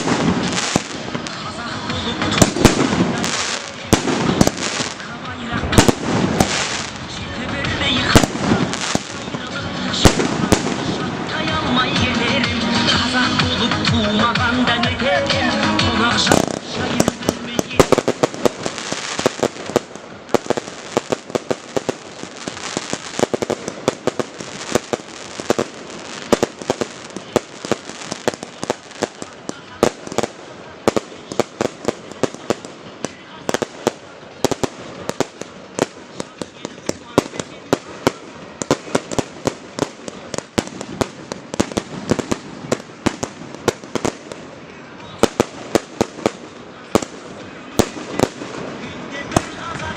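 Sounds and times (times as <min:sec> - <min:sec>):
background noise: 0:00.0 - 0:49.9
fireworks bangs and cracks: 0:00.0 - 0:49.9.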